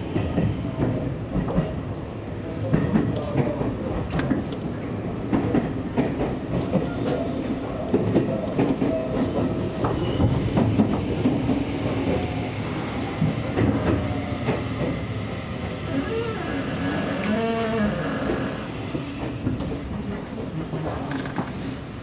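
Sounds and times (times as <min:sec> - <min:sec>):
electric train rumble: 0:00.0 - 0:22.0.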